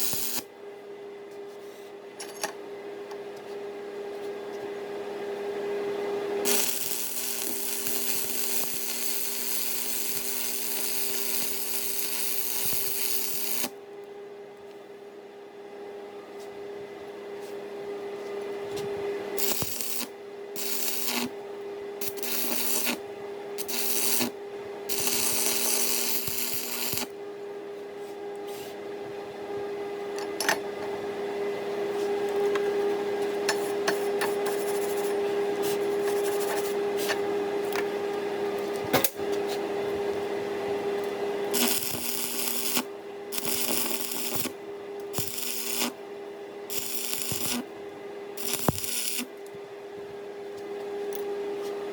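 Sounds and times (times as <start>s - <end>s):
welding arc crackling: 0.0s - 0.4s, 6.4s - 13.7s, 19.4s - 21.3s, 22.0s - 23.0s, 23.6s - 24.3s, 24.9s - 27.1s, 41.5s - 46.0s, 46.7s - 47.6s, 48.4s - 49.3s
steady hum: 40.0s - 50.1s.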